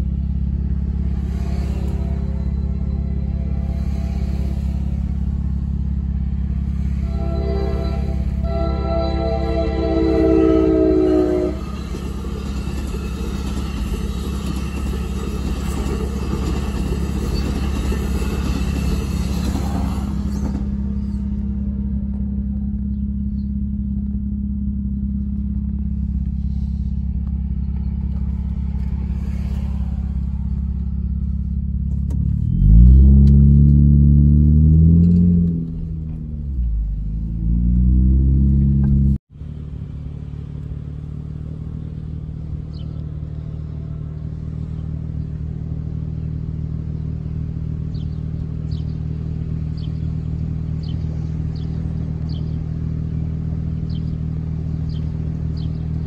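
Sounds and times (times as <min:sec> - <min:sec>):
low engine hum: 0:00.0 - 0:14.0, 0:14.6 - 0:56.0
train rolling past: 0:00.0 - 0:22.8, 0:25.6 - 0:50.8
street traffic: 0:00.0 - 0:56.0
engine revving: 0:25.4 - 0:40.0.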